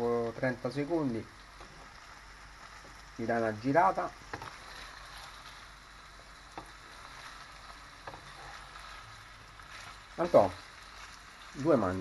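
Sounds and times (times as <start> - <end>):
meat sizzling in a pan: 0.0 - 12.0
wooden spatula knocking a pan: 4.2 - 4.9, 6.5 - 6.8.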